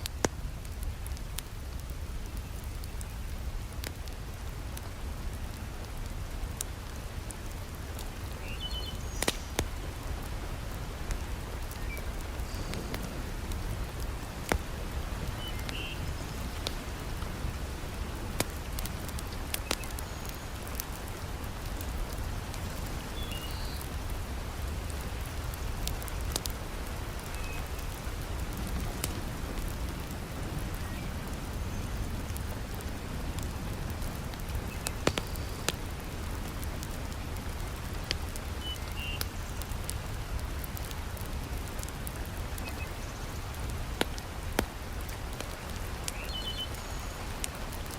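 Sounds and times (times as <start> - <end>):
heavy rain falling: 0.0 - 47.9
wood fire crackling: 0.0 - 47.9.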